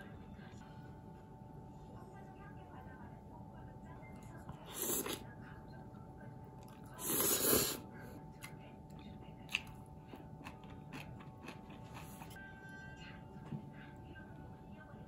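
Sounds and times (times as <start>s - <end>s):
person chewing food: 8.4s - 12.4s.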